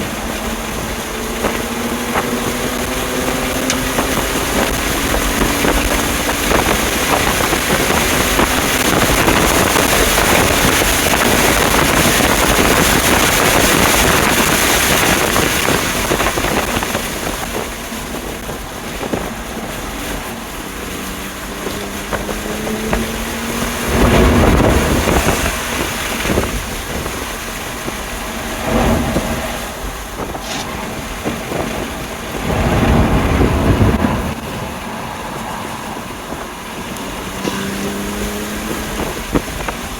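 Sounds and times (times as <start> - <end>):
car engine pulling hard: 0.0 - 39.9
tyre noise: 0.0 - 39.9
wind noise: 0.0 - 39.9
loud low rumbles: 21.9 - 39.9.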